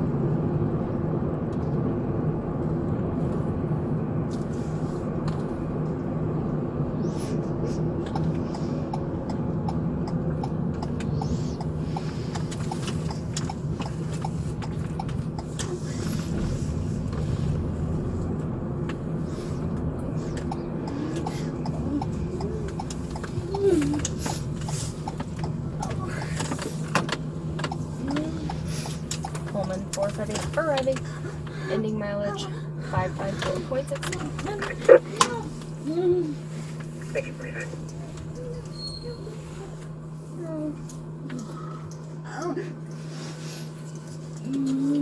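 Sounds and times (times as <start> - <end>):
car engine and road hum: 0.0 - 45.0
light ticking: 8.0 - 15.7, 19.6 - 31.5.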